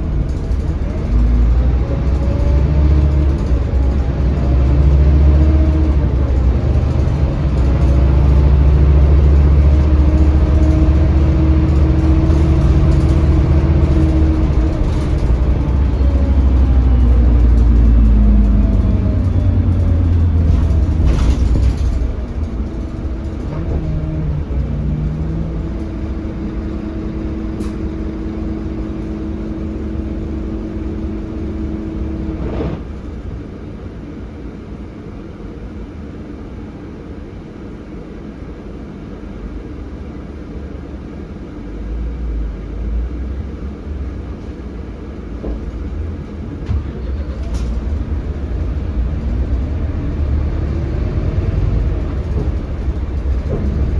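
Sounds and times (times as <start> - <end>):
bus engine rumbling: 0.0 - 53.9.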